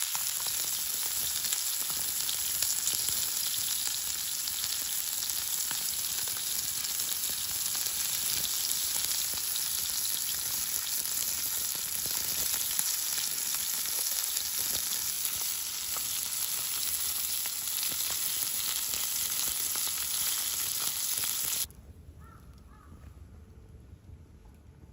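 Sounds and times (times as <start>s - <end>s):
steak sizzling over campfire: 0.0s - 21.7s.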